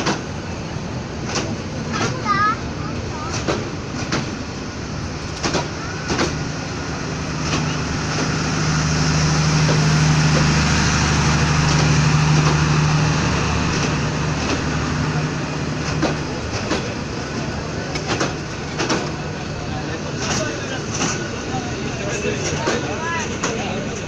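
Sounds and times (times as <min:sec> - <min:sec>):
train rushing noise: 0:00.0 - 0:24.0
sharp clacks: 0:01.3 - 0:02.2, 0:03.3 - 0:04.4, 0:05.3 - 0:06.4, 0:17.9 - 0:19.2.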